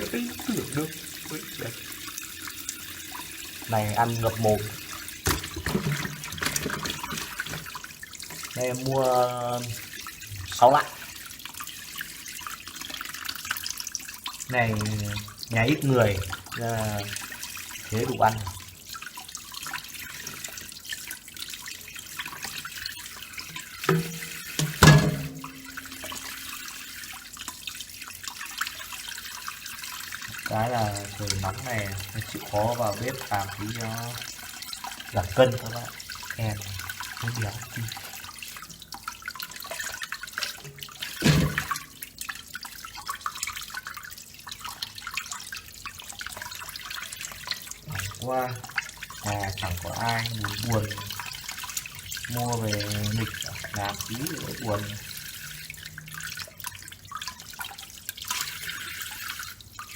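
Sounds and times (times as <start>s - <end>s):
splashing and small knocks: 0.0s - 59.9s
tap water running into sink: 0.0s - 59.9s
loud thump or splash: 23.9s - 25.8s, 41.2s - 41.8s.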